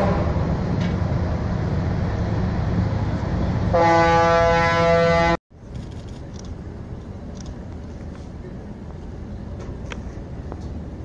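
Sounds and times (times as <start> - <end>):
ship's horn blast: 0.0 - 0.6, 3.6 - 5.4
low engine rumble: 0.0 - 4.2, 5.5 - 11.0
open-air background: 0.0 - 11.0.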